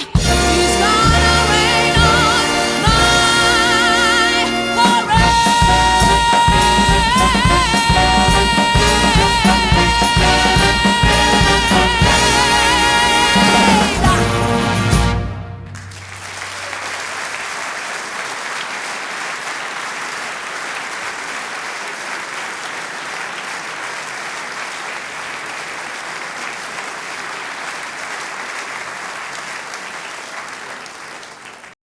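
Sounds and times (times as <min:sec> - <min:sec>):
big band sustained chord: 0:00.2 - 0:15.9
audience applause: 0:10.2 - 0:31.8.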